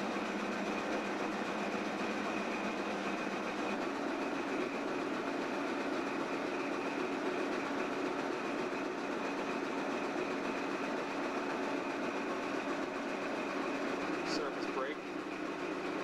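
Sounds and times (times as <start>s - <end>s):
diesel locomotive running: 0.0s - 16.0s
high mechanical whine: 10.0s - 16.0s.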